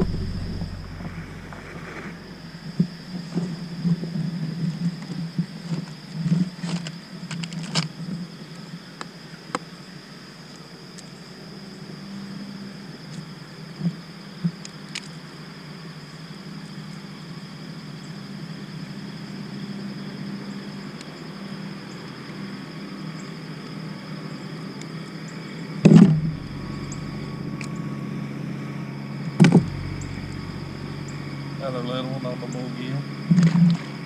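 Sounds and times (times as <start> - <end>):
high-pitched drone: 0.0 - 2.4, 26.0 - 33.1
low outdoor rumble: 0.0 - 5.0, 25.9 - 34.0.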